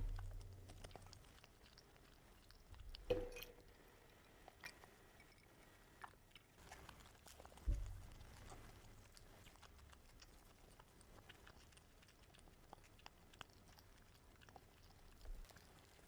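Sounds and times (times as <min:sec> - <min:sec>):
low knock: 0:00.0 - 0:00.4
chewing food: 0:00.0 - 0:16.0.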